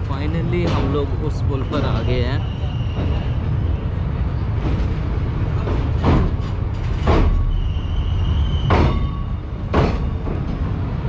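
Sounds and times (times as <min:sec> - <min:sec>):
train rumble on bridge: 0:00.0 - 0:11.0
faint high squeal: 0:07.4 - 0:09.4.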